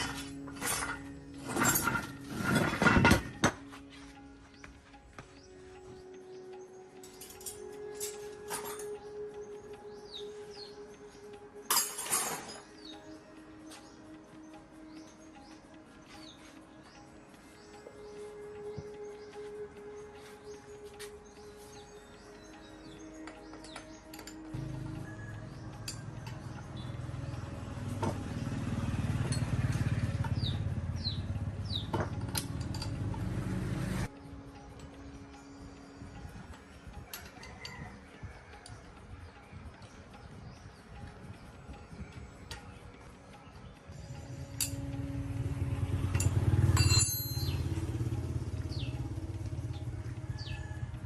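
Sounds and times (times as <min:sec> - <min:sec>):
metallic clinks: 0:00.0 - 0:03.7, 0:06.0 - 0:13.4, 0:21.3 - 0:51.0
bird chirps: 0:03.9 - 0:11.7
vehicle engine running: 0:24.4 - 0:36.2, 0:43.0 - 0:51.0.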